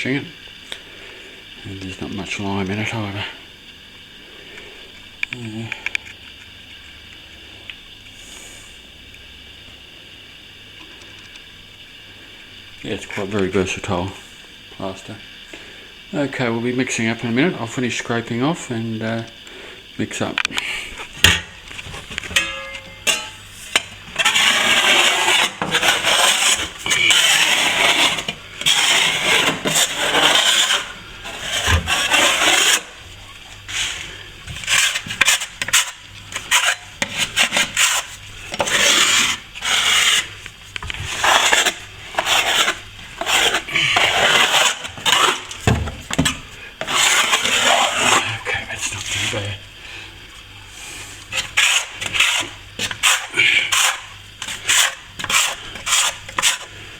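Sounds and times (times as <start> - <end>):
hand scraper scraping plaster: 21.2 - 49.6, 50.8 - 56.9.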